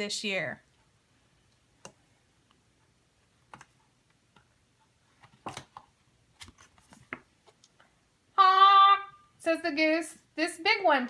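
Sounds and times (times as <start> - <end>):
clicks and taps handling book: 3.4 - 7.9.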